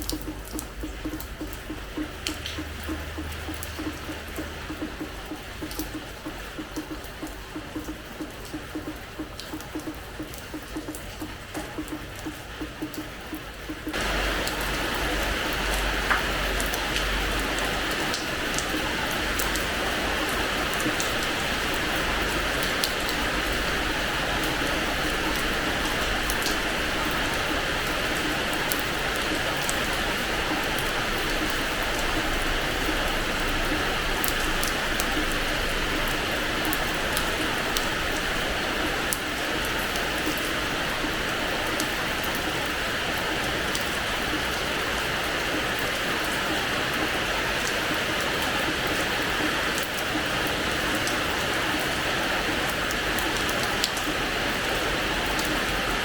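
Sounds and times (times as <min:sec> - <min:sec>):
sharp drop ticks: 0:00.0 - 0:14.6
rain on a hard floor: 0:00.0 - 0:56.0.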